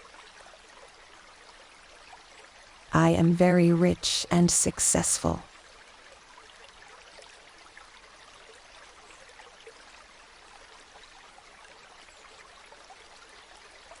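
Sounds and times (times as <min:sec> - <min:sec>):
stream trickling and babbling: 0:00.0 - 0:14.0.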